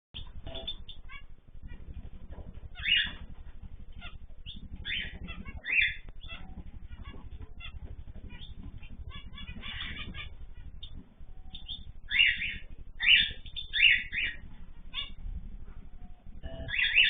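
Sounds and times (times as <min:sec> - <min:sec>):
cage birds chirping: 0:00.2 - 0:17.0
low rapid fluttering hum: 0:00.2 - 0:17.0.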